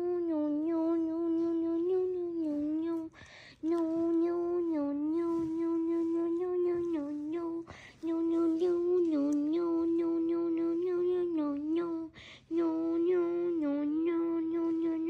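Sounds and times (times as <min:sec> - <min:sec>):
person humming a held note: 0:00.0 - 0:15.0
person breathing: 0:03.1 - 0:03.6, 0:07.6 - 0:08.1, 0:12.1 - 0:12.5.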